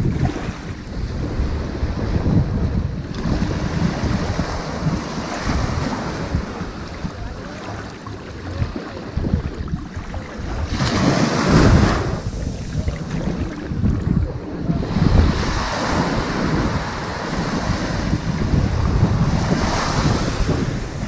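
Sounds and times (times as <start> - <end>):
ocean surf washing onto beach: 0.0 - 21.0
wind rumble on microphone: 0.0 - 21.0.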